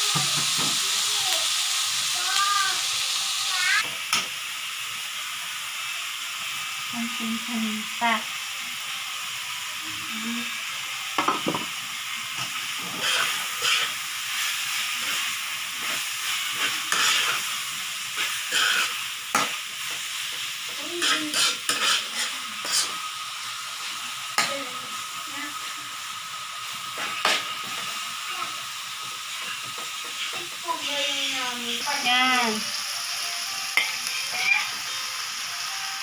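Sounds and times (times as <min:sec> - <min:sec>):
vegetables sizzling in oil: 0:00.0 - 0:36.0
metal spatula scraping a pan: 0:12.8 - 0:14.0, 0:14.7 - 0:17.5, 0:18.2 - 0:19.5, 0:20.9 - 0:23.0.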